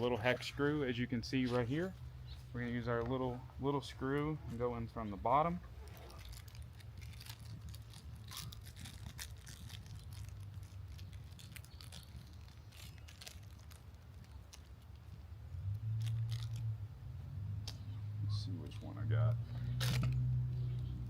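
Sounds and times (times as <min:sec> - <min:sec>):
plastic packets rustling: 0:05.8 - 0:15.2, 0:16.0 - 0:16.6.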